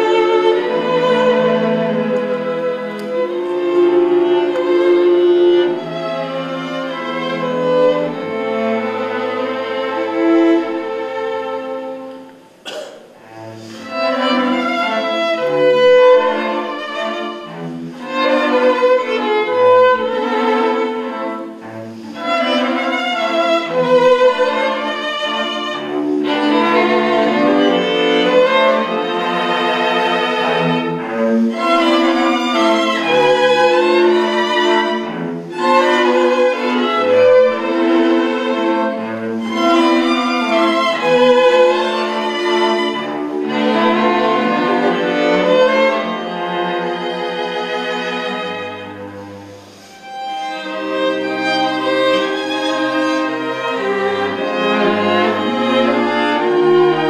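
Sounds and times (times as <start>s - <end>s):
violin and cello melody: 0.0s - 57.0s.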